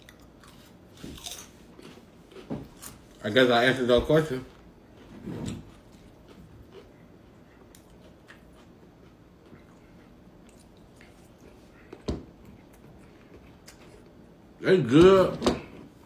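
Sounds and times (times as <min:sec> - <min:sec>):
person chewing noodles: 0:00.0 - 0:03.2, 0:05.7 - 0:14.1.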